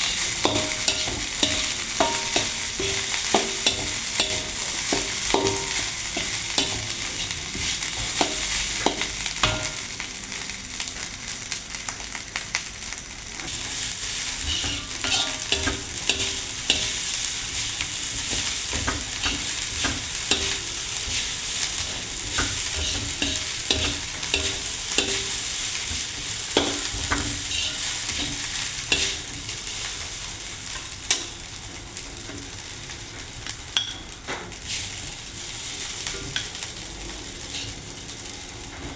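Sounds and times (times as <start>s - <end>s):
spatula scraping a pan: 0.0s - 9.8s, 13.6s - 29.4s, 37.5s - 37.8s
fried rice sizzling in a pan: 0.0s - 38.9s.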